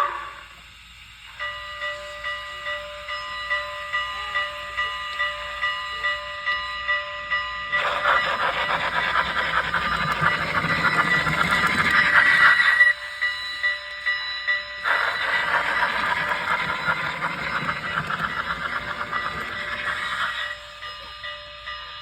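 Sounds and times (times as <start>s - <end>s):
steam locomotive whistle: 0.0s - 3.9s, 7.8s - 14.1s, 14.8s - 22.0s
locomotive bell ringing: 1.2s - 22.0s.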